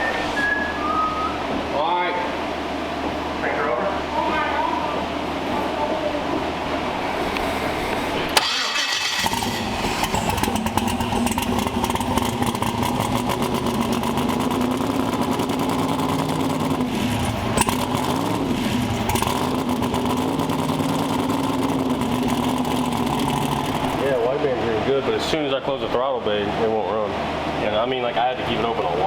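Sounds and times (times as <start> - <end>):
engine running roughly: 7.2 - 25.4.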